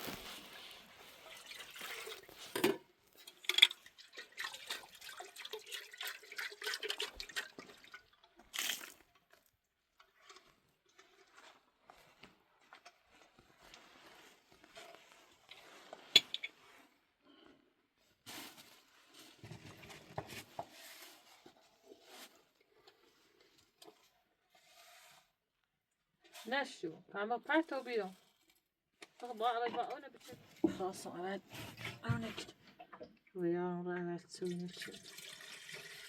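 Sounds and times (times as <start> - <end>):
water splashing and dripping: 1.0 - 2.6, 3.2 - 9.1, 34.4 - 36.0.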